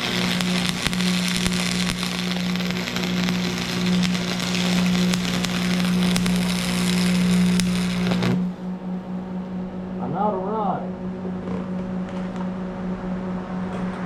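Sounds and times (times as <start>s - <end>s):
welding arc crackling: 0.0s - 8.7s
steady low hum: 0.0s - 14.0s.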